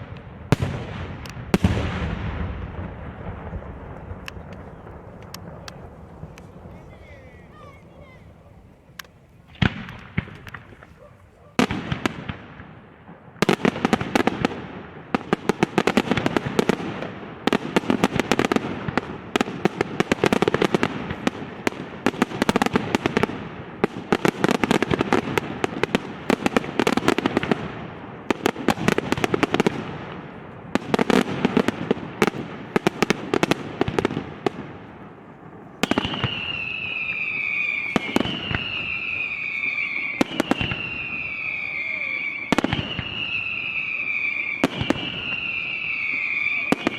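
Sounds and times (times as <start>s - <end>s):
fireworks bangs and crackle: 0.0s - 46.9s
whistling fireworks: 0.0s - 46.9s.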